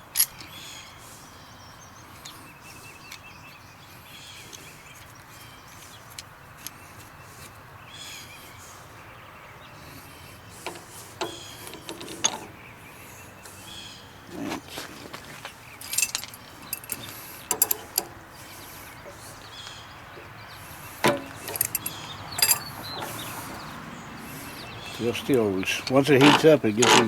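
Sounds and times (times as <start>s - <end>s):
birds chirping: 0.0s - 27.0s
outdoor hush: 0.0s - 27.0s
light metallic clicks: 15.8s - 18.2s, 21.0s - 23.4s.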